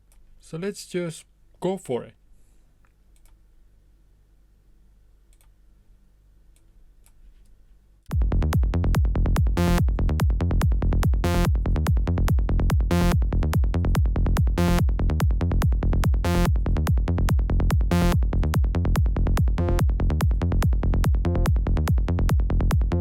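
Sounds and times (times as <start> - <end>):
electronic psytrance music: 8.1 - 23.0.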